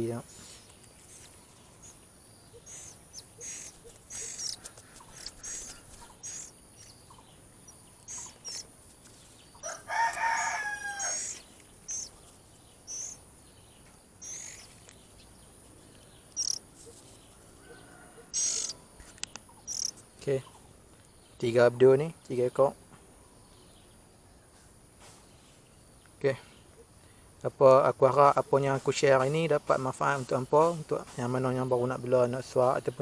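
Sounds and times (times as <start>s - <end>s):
high bird chirps: 0.3s - 15.3s, 16.0s - 20.7s
rooster crowing: 9.6s - 11.4s, 17.4s - 19.0s.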